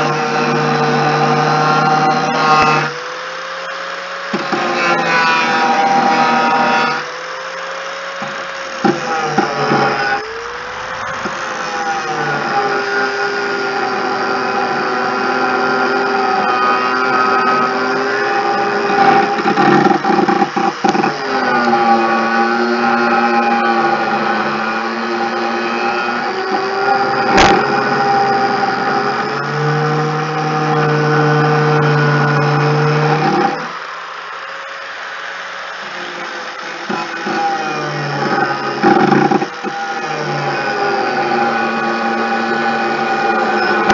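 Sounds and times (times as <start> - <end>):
motor running: 0.0 - 43.9
sharp knocks: 27.3 - 27.8.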